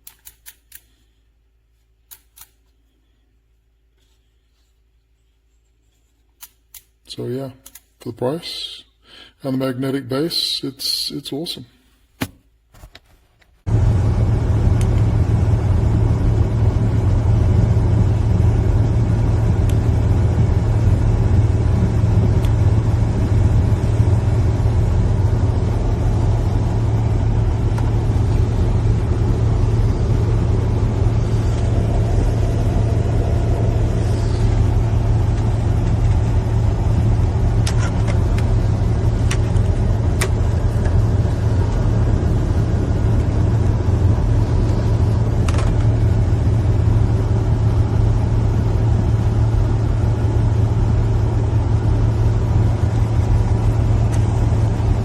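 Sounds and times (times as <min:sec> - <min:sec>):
engine low rumble: 0:13.6 - 0:55.0.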